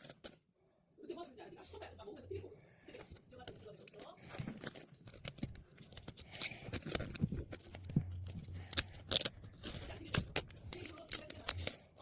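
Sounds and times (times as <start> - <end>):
packaging tearing and crinkling: 3.8 - 11.9.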